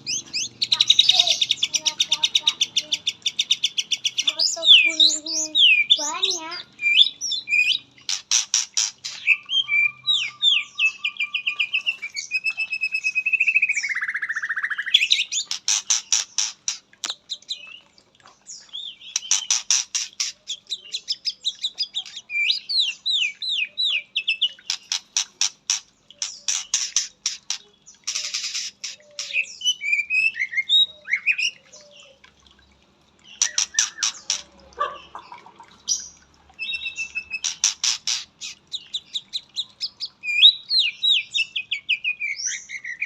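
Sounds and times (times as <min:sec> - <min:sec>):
songbird singing varied song: 0:00.0 - 0:08.2, 0:09.2 - 0:15.6.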